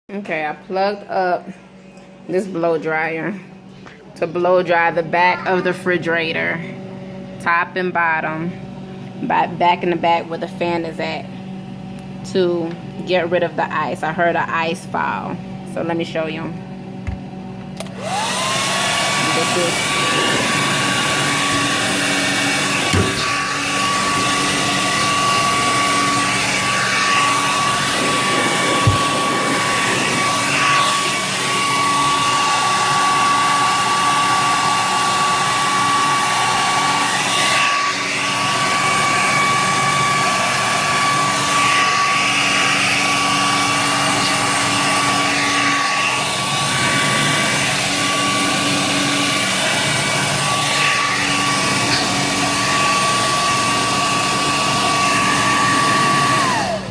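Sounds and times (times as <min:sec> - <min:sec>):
hair dryer blowing air: 0:17.8 - 0:56.9.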